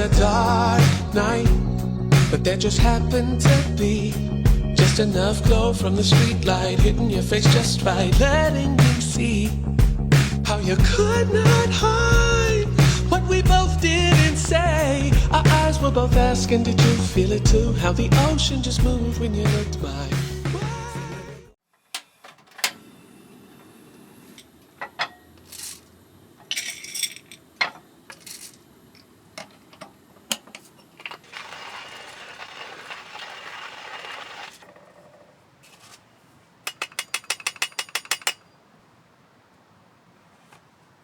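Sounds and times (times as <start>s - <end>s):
steady hiss: 8.8s - 18.5s, 22.0s - 34.6s
metal clinks of camp gear: 26.5s - 28.6s.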